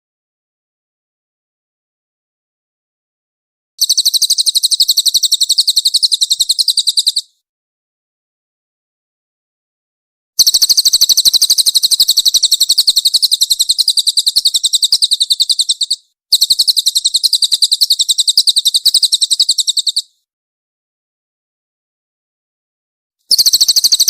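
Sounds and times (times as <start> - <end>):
songbird fast high trill: 3.8 - 7.4, 10.4 - 20.2, 23.3 - 24.0.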